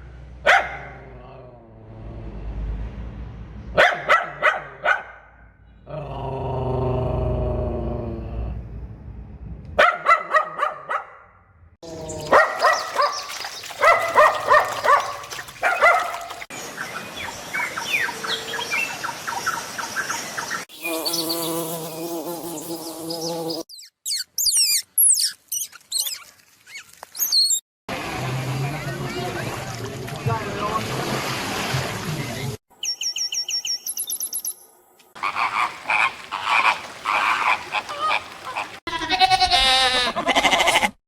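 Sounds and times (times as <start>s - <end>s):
high whistling bird song: 32.8s - 34.7s.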